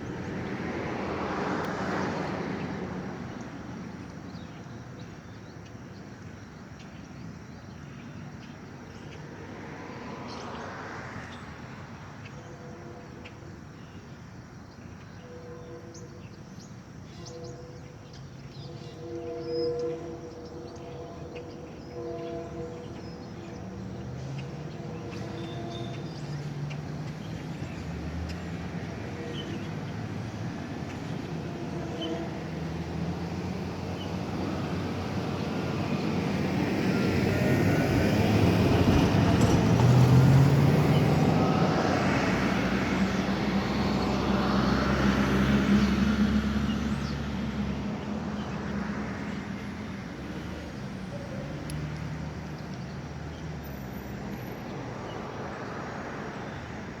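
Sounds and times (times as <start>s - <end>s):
motor vehicle passing by: 22.5s - 57.0s.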